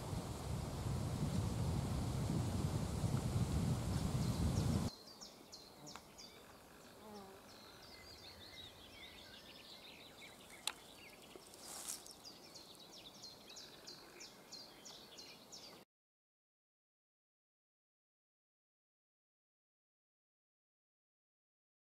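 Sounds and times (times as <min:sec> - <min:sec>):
small birds chirping: 0:00.8 - 0:15.8.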